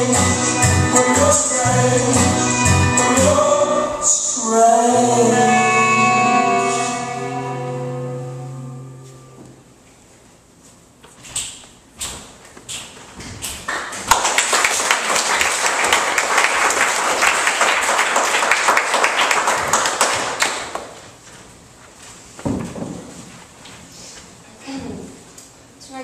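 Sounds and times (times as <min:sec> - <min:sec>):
audience applauding: 0:13.7 - 0:20.9.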